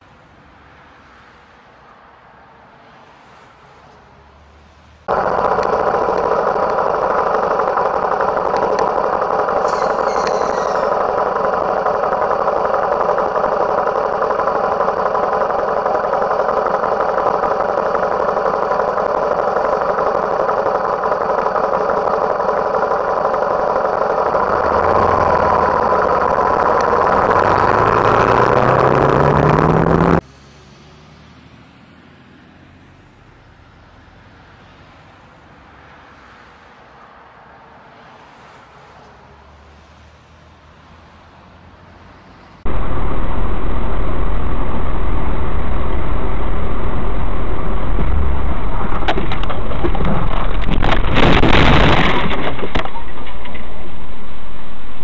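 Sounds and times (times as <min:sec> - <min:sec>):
road noise: 0:00.0 - 0:55.0
vehicle engine running: 0:05.1 - 0:30.2, 0:42.7 - 0:53.0.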